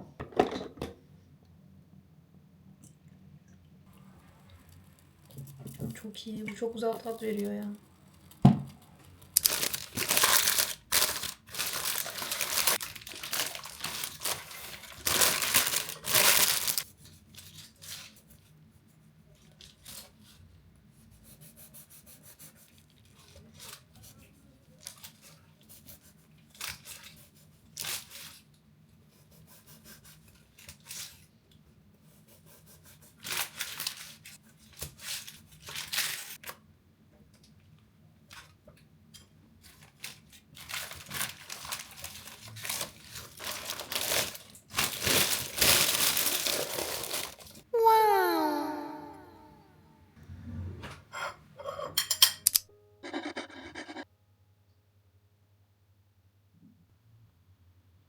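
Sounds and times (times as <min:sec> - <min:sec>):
crinkling and tearing: 0:06.8 - 0:18.2, 0:33.2 - 0:36.6, 0:39.7 - 0:47.6.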